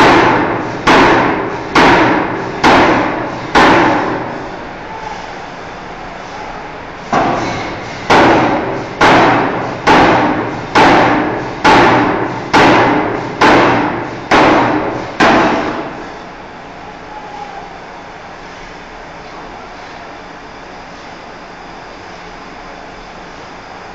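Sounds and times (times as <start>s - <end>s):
forging hammer striking steel: 0.0s - 4.5s, 7.1s - 16.0s.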